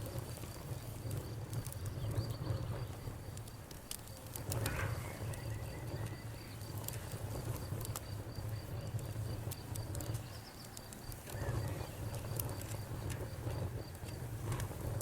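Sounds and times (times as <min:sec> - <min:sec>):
campfire crackling and popping: 0:00.0 - 0:15.0
crickets chirping: 0:00.0 - 0:15.0.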